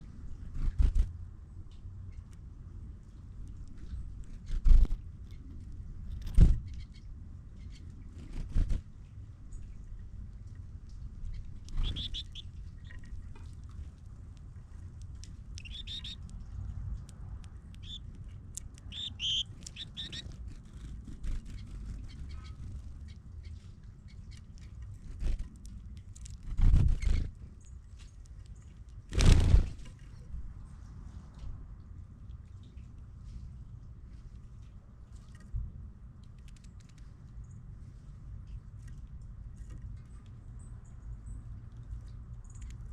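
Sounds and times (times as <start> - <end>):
low steady rumble: 0.0 - 42.9
small birds chirping: 3.1 - 10.0, 10.9 - 29.3.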